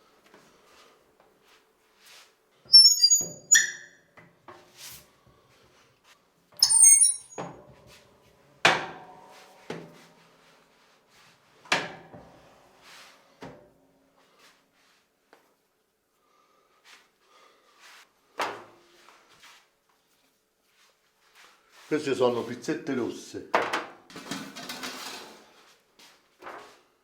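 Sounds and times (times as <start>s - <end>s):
high-pitched squeaks: 2.7s - 4.0s, 6.6s - 7.4s.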